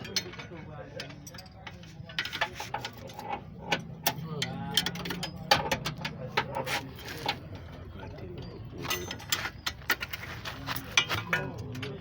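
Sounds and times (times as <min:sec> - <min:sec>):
clicks and knocks of hand work: 0:00.0 - 0:07.7.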